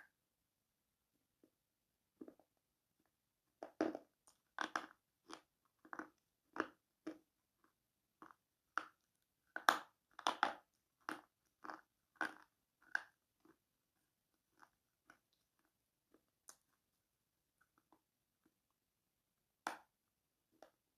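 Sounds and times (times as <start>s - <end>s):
pencil being chewed crunching: 3.6s - 16.8s.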